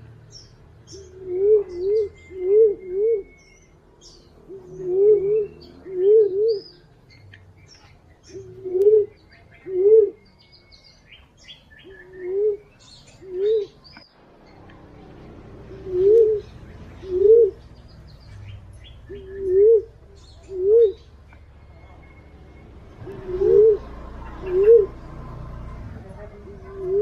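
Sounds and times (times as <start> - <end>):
small birds chirping: 0.0 - 27.0
pigeon cooing: 0.9 - 3.5, 4.5 - 6.8, 8.2 - 10.2, 11.8 - 13.8, 15.3 - 17.8, 19.0 - 21.2, 22.1 - 27.0.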